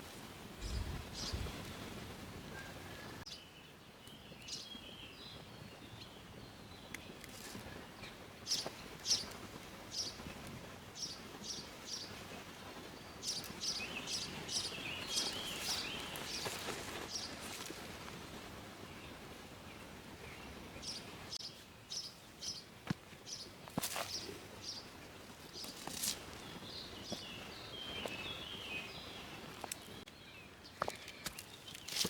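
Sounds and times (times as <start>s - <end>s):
faint outdoor background: 0.0s - 32.0s
small birds chirping: 0.6s - 1.7s, 2.5s - 32.0s.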